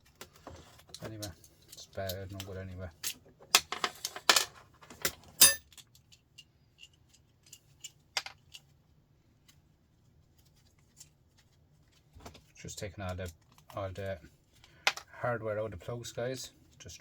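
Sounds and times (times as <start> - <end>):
small metal parts clinking: 5.4 - 8.7.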